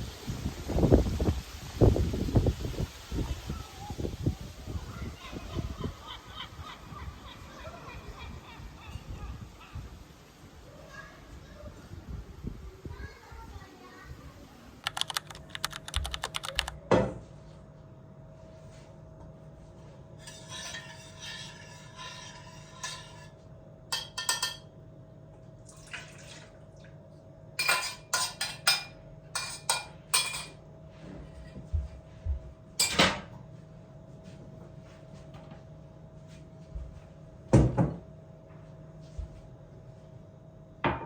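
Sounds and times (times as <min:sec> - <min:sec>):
dishes and cutlery clinking: 0:20.2 - 0:24.7, 0:27.6 - 0:30.6, 0:32.8 - 0:33.3.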